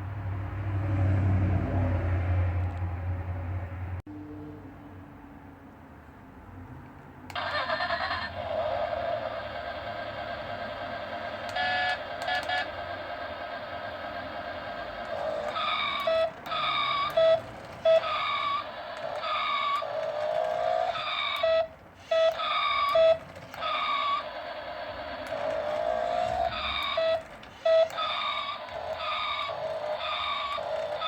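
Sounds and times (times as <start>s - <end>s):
synthetic toy engine hum: 7.3s - 31.0s
toy engine revving: 7.3s - 31.0s.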